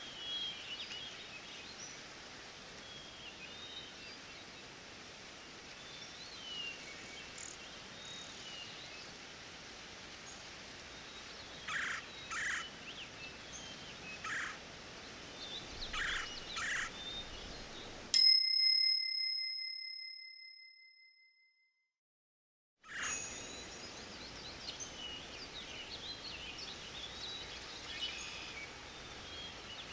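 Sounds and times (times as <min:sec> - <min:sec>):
birds calling: 0:11.6 - 0:18.0
timer bell chime: 0:18.2 - 0:21.2, 0:22.9 - 0:24.3.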